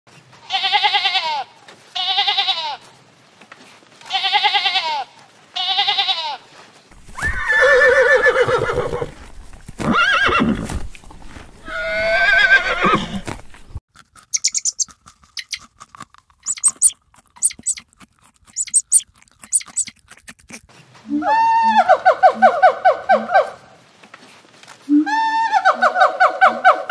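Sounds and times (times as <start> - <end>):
sheep bleating: 4.1 - 6.4
horse whinnying: 7.2 - 9.2, 9.8 - 10.7, 11.6 - 13.2
rabbit chewing leafy greens: 13.9 - 21.0.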